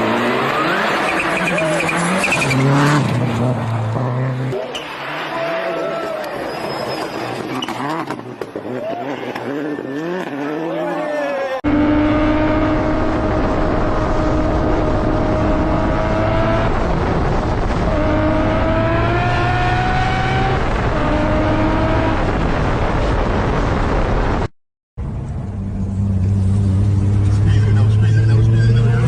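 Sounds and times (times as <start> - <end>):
engine revving: 0.0 - 5.6, 7.6 - 22.7, 25.4 - 29.0.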